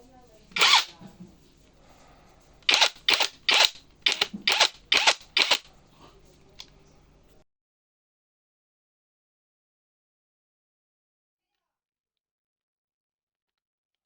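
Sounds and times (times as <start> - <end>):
impact wrench blips: 0.5 - 0.9, 2.7 - 5.7.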